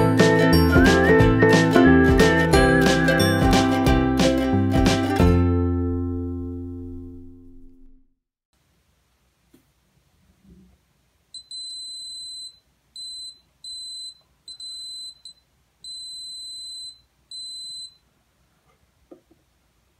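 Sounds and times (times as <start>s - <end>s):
high-pitched buzzer beeps: 11.4s - 18.0s.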